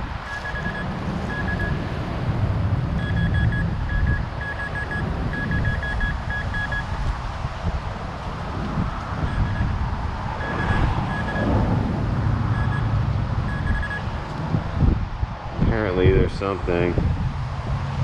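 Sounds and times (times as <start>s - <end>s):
wind rumble on microphone: 0.0s - 18.0s
metal detector beeps: 0.2s - 1.8s, 3.0s - 6.9s, 9.2s - 9.7s, 10.4s - 11.5s, 12.5s - 12.9s, 13.5s - 14.1s.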